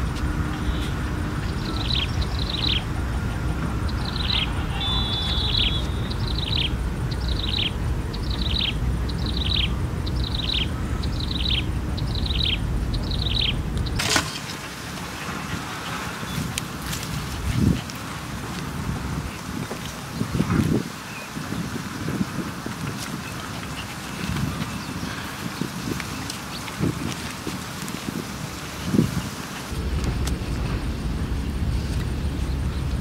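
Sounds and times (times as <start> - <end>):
steady low rumble: 0.0 - 20.8, 28.9 - 33.0.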